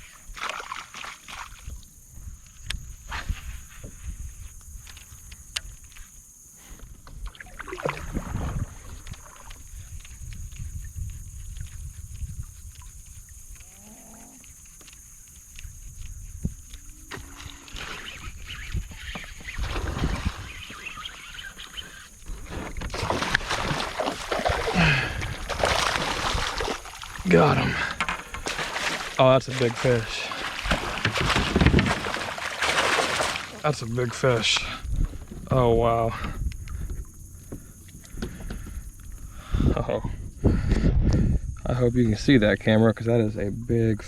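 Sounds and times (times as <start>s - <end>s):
water and wind against hull: 0.0s - 13.7s, 14.4s - 44.0s
water swishing: 7.2s - 10.0s, 14.5s - 35.4s.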